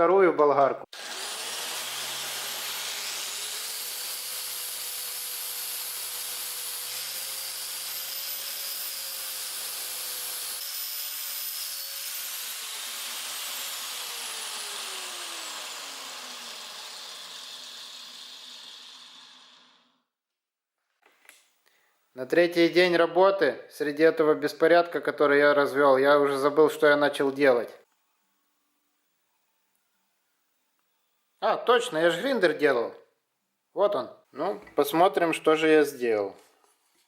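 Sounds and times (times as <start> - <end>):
angle grinder whining: 0.9 - 20.0.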